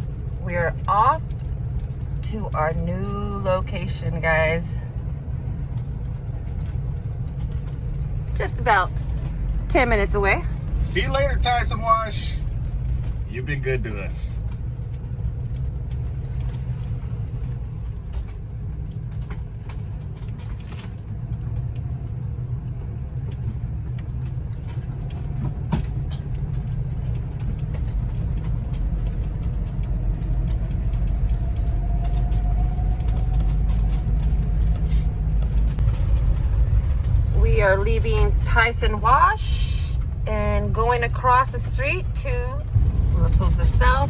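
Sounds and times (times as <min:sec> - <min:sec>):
vehicle engine and road rumble: 0:00.0 - 0:44.0
light clicks and rattles: 0:04.7 - 0:39.3.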